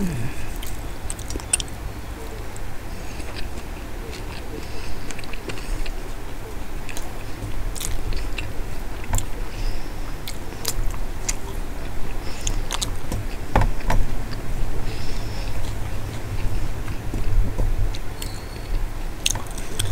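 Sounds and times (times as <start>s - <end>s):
wet mouth clicks: 0.0s - 1.7s
steady low hum: 0.0s - 13.4s
person chewing food: 0.0s - 13.5s, 14.3s - 19.9s.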